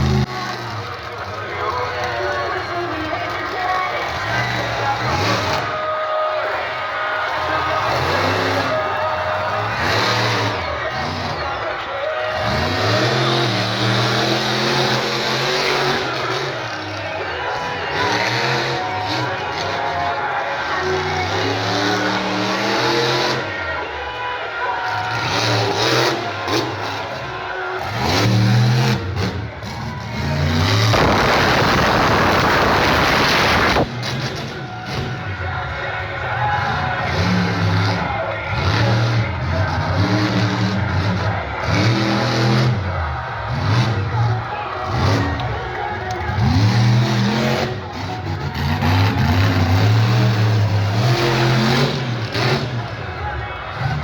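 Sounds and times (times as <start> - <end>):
truck engine revving: 0.0 - 54.0
loud rushing noise: 27.9 - 35.4.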